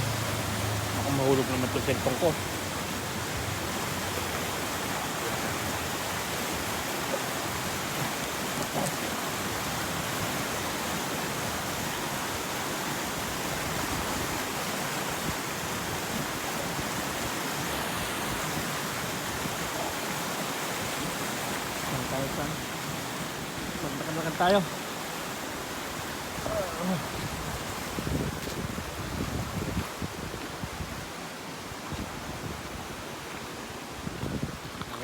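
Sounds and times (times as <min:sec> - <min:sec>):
river rushing over rocks: 0:00.0 - 0:35.0.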